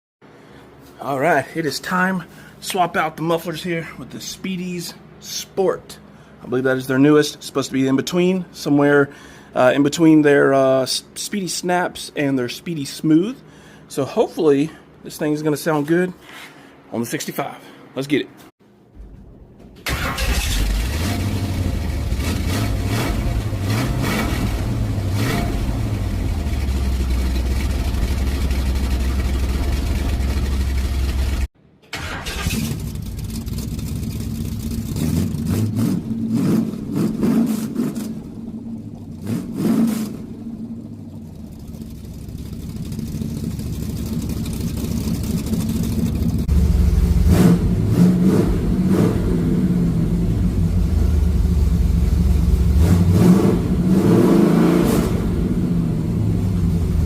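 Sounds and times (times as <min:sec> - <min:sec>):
engine exhaust revving: 0:19.9 - 0:57.0.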